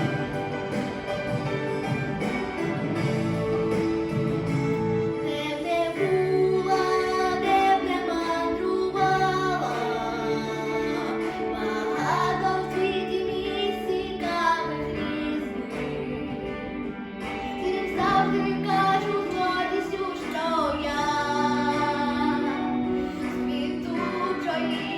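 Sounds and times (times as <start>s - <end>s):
instrumental backing music: 0.0s - 24.9s
woman singing with sliding notes: 5.0s - 24.9s.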